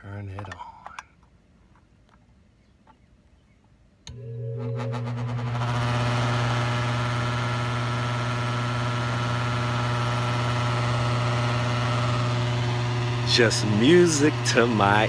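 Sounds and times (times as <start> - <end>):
attic fan motor hum: 4.1 - 15.0.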